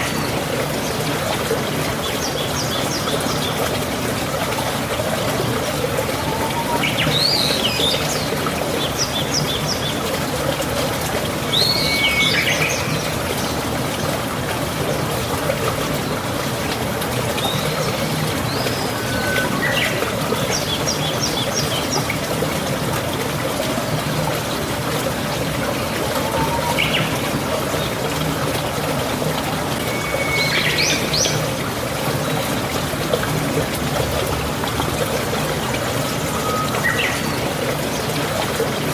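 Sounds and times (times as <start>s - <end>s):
water rushing: 0.0s - 38.9s
bird whistling and chirping: 6.2s - 7.8s, 18.5s - 20.0s, 26.2s - 27.1s, 29.8s - 31.3s.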